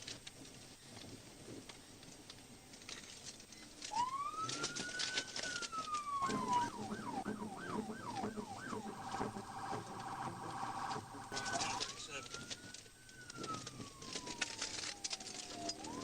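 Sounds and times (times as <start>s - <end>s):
police siren: 3.8s - 16.0s.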